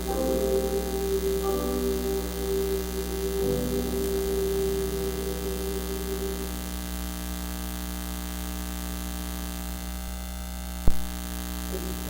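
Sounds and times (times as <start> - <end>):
held musical note: 0.0 - 7.1
electrical mains hum: 0.0 - 12.0.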